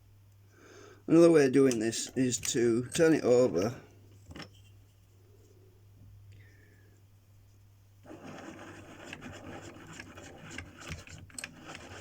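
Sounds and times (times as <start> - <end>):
plastic wheel rubbing and scraping: 8.0 - 12.0.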